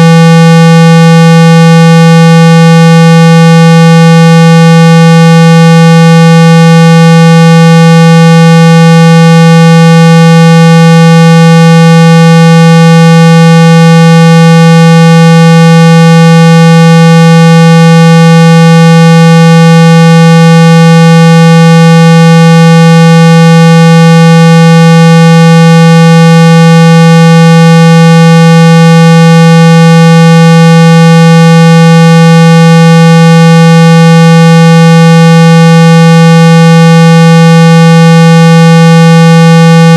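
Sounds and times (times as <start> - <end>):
loud electronic buzzing tone: 0.0 - 39.9.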